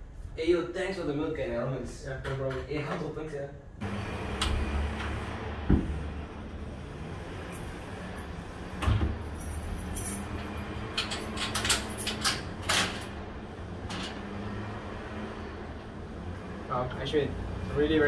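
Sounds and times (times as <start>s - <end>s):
key and latch rattling and clicking: 9.5s - 13.0s.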